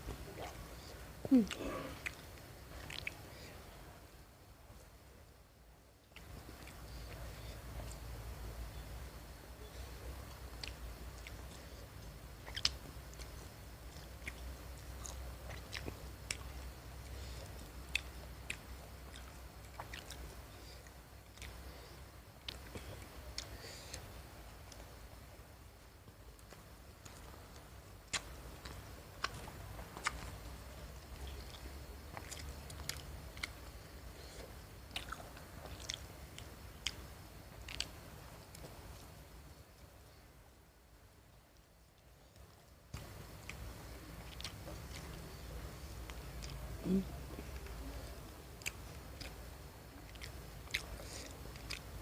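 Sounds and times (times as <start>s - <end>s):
person chewing with wet smacks: 0.0s - 3.7s, 6.1s - 8.8s, 9.6s - 25.1s, 26.4s - 39.1s, 42.9s - 52.0s
low steady hum: 0.0s - 52.0s
wet mouth clicks: 1.3s - 3.3s, 12.4s - 13.4s, 28.1s - 29.4s.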